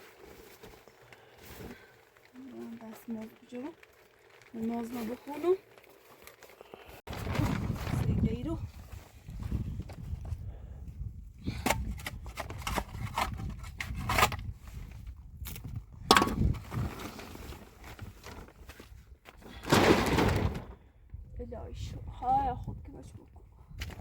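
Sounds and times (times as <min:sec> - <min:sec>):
dense scraping or rustling: 0:00.0 - 0:10.2, 0:16.2 - 0:20.9
knocks and scrapes: 0:19.5 - 0:20.8.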